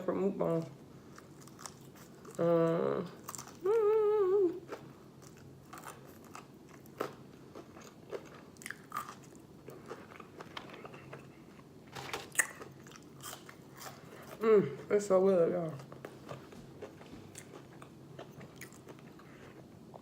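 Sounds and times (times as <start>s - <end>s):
chewing: 15.8s - 20.0s.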